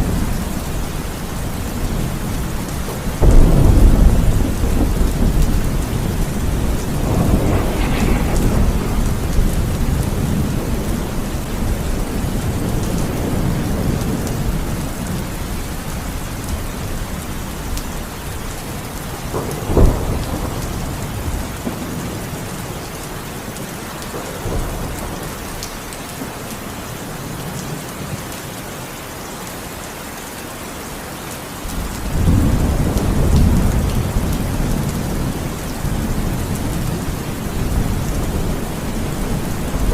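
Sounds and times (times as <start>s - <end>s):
thunder rumbling: 0.0s - 22.9s, 31.7s - 39.9s
heavy rain falling: 0.0s - 39.9s.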